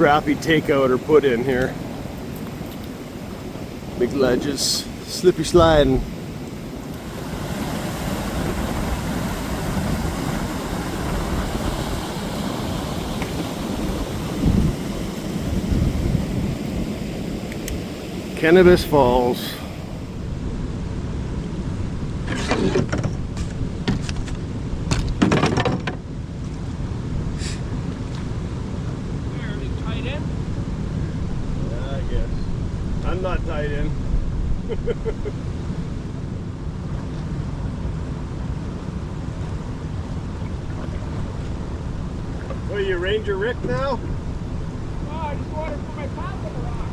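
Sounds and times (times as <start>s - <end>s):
moving water: 0.0s - 20.5s, 36.6s - 46.9s
steady rushing noise: 0.0s - 22.3s
wind buffeting microphone: 0.0s - 25.2s.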